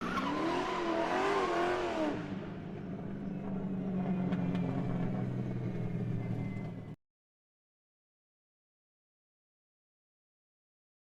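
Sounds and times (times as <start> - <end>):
car tyre squeal: 0.0 - 2.2
car engine droning: 0.0 - 7.0.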